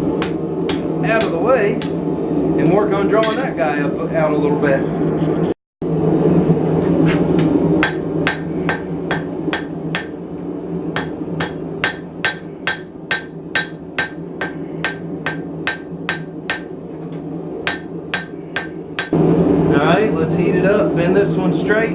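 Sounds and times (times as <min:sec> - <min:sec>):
hammer striking steel on anvil: 0:00.0 - 0:02.4, 0:03.2 - 0:03.8, 0:07.4 - 0:16.9, 0:17.7 - 0:19.2
steady low hum: 0:00.0 - 0:21.9.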